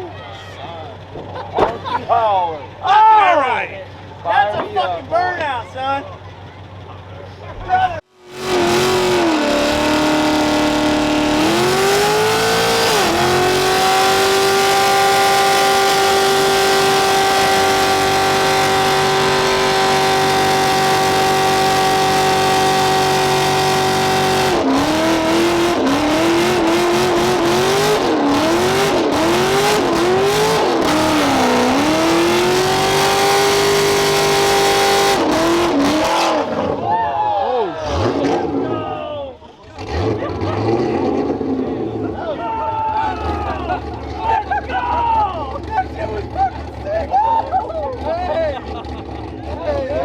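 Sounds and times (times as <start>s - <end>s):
engine revving at high revs: 8.2s - 36.8s, 37.8s - 38.7s, 39.7s - 42.0s.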